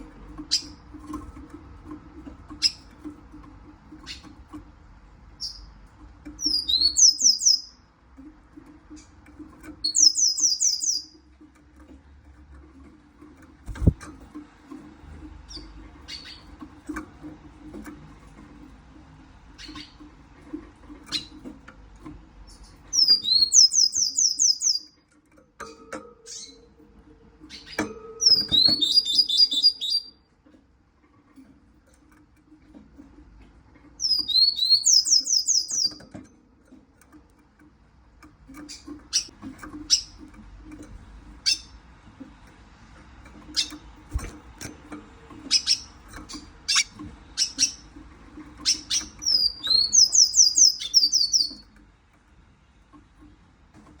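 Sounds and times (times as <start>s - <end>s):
bird chirping rapidly: 5.4s - 5.7s, 6.4s - 7.8s, 9.8s - 11.2s, 22.6s - 25.0s, 27.5s - 30.2s, 34.0s - 36.0s, 45.5s - 46.0s, 46.7s - 47.9s, 48.6s - 51.6s.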